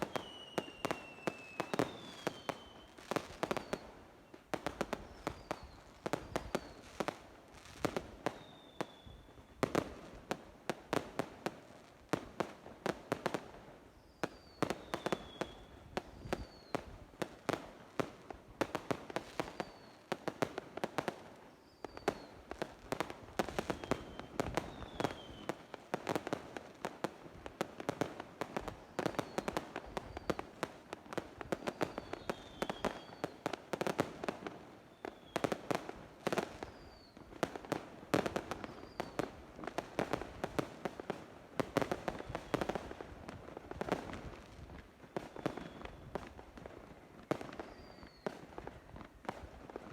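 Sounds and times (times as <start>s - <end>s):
fireworks whistles: 0.0s - 10.0s, 13.8s - 17.1s, 19.2s - 20.2s, 21.4s - 26.3s, 28.7s - 30.6s, 31.4s - 37.5s, 38.2s - 39.4s, 41.8s - 43.0s, 45.1s - 46.4s, 47.4s - 48.8s
fireworks bangs and pops: 0.0s - 49.9s.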